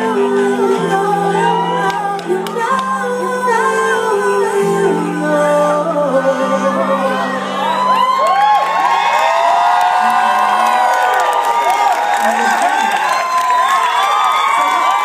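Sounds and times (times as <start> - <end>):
woman singing wordless runs: 0.0 - 7.2
live band sustained chords: 0.0 - 8.9.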